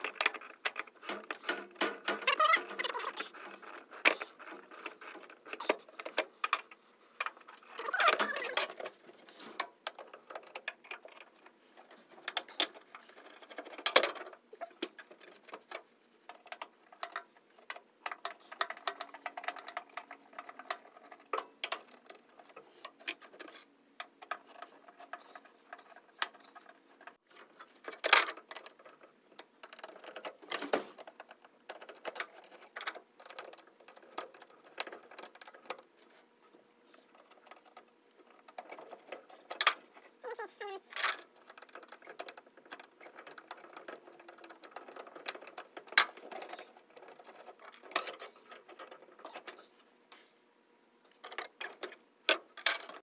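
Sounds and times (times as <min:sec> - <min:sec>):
hand tools clicking and scraping: 0:00.0 - 0:28.5, 0:37.0 - 0:50.3.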